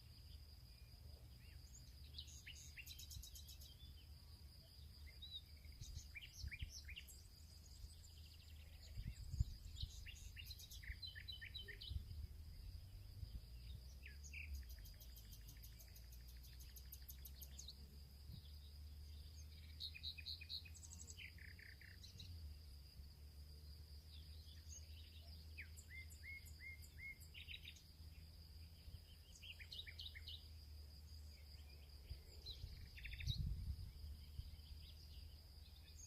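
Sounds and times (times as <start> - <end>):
small birds chirping: 0.0 - 36.0
faint low rumble: 4.7 - 10.4, 28.4 - 36.0.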